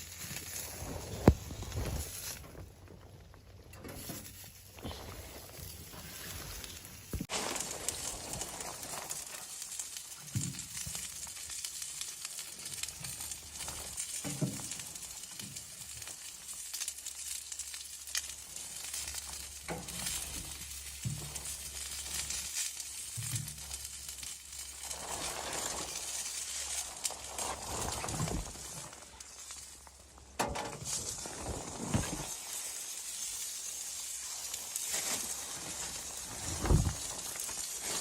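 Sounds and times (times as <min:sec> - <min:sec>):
food sizzling in a pan: 0:06.4 - 0:27.4, 0:32.2 - 0:38.0.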